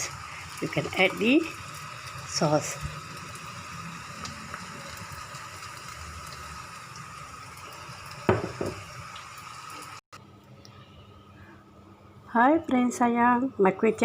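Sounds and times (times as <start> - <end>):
noodles sizzling in hot oil: 0.0 - 10.0.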